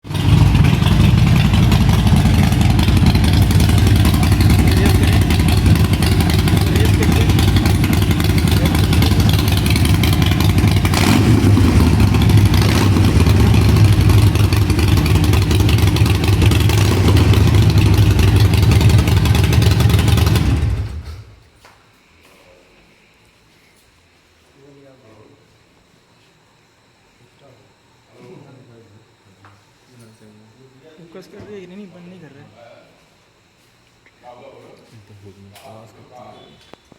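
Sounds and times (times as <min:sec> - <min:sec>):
motorcycle engine running: 0:00.0 - 0:21.4.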